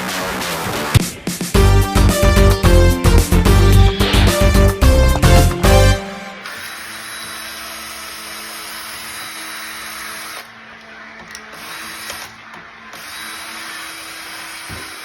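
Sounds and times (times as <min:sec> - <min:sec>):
electric power drill running: 0:06.4 - 0:15.0.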